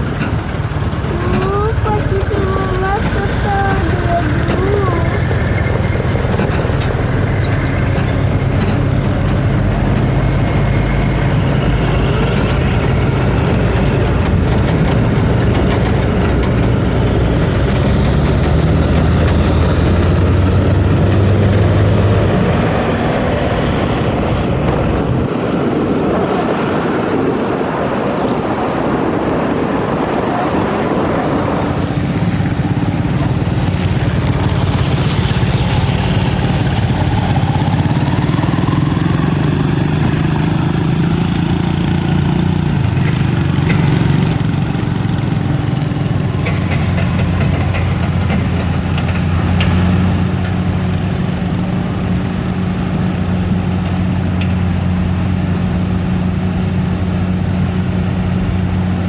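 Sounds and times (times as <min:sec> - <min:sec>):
truck diesel engine under load: 0:00.0 - 0:59.0.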